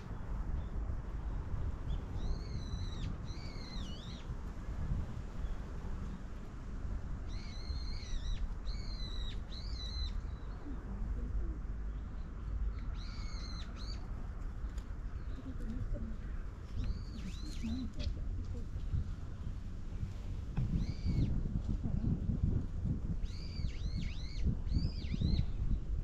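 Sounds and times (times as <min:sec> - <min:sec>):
steady low rumble: 0:00.0 - 0:26.0
bird whistled calls: 0:20.8 - 0:21.3, 0:23.2 - 0:25.5.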